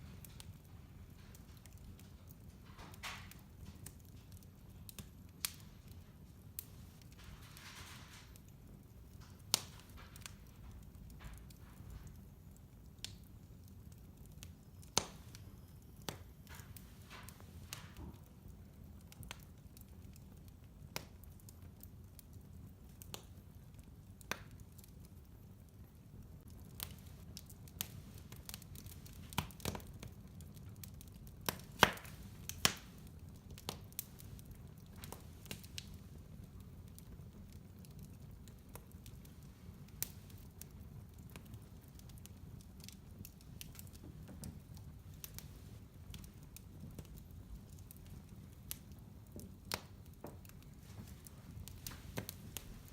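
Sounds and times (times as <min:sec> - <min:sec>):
wood fire crackling and popping: 0:00.0 - 0:52.9.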